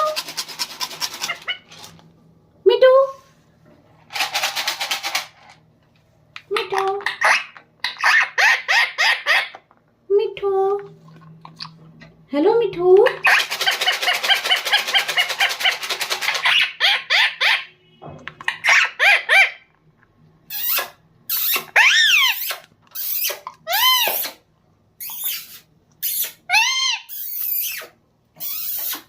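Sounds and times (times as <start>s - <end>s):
parrot chattering and squawking: 0.0s - 2.0s, 6.6s - 9.7s, 13.0s - 17.8s, 18.4s - 19.7s, 20.5s - 29.0s.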